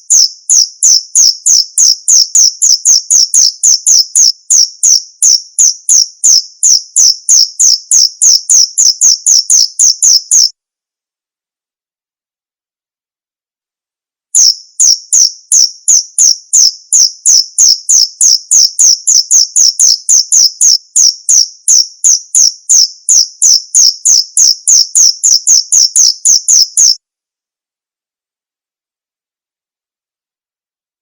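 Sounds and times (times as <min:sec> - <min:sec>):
cricket chirping: 0:00.0 - 0:10.5, 0:14.4 - 0:27.0.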